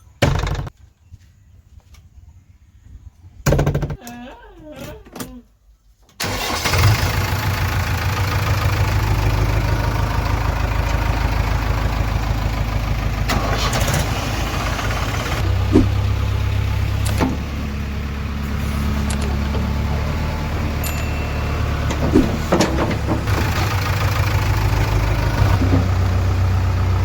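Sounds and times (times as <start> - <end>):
heavy diesel engine running: 6.2 - 27.0.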